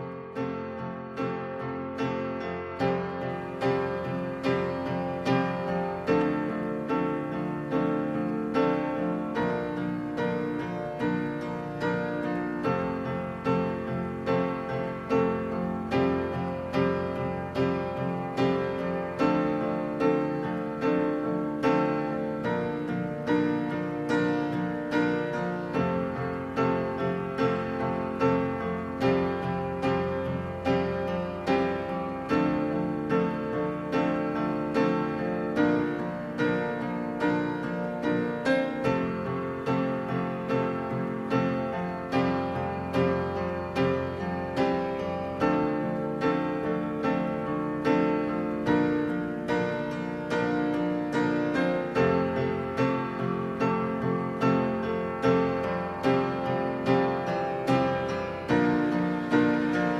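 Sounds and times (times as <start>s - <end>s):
slow piano chords: 0.0s - 59.9s.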